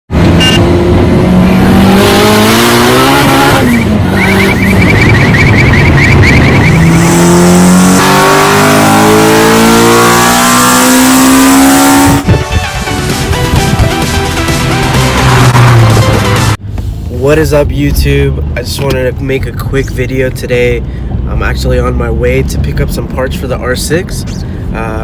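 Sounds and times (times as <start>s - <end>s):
engine accelerating hard: 0.1s - 16.6s.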